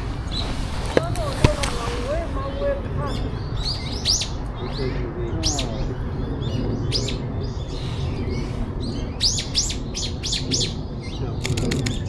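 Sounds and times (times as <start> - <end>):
songbird calling: 0.0 - 12.0.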